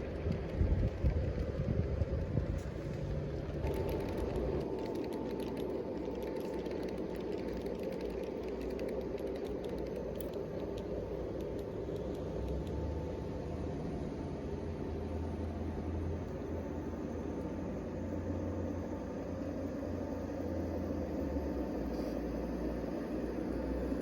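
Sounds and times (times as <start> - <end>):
small ticks: 0.0 - 13.2
thin steady whine: 0.0 - 24.0.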